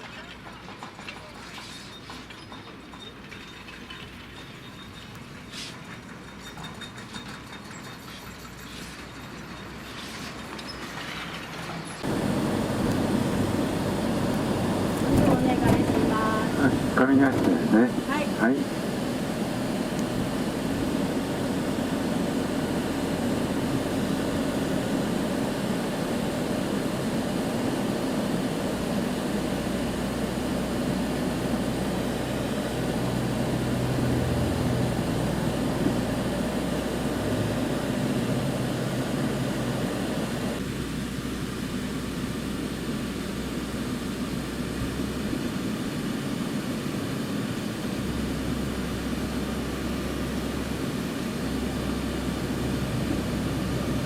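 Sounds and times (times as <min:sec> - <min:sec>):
vehicle rumble and road noise: 0:00.0 - 0:54.0
low engine drone: 0:12.0 - 0:54.0.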